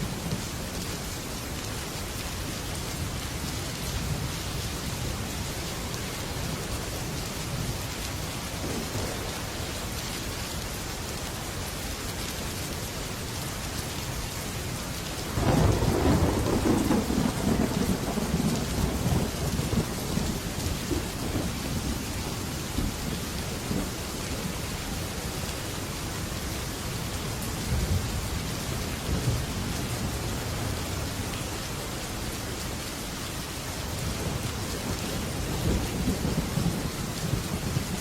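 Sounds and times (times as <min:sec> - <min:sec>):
heavy rain on metal roof: 0:00.0 - 0:38.0
thunder rumbling: 0:08.6 - 0:09.6, 0:15.3 - 0:24.5, 0:34.1 - 0:38.0.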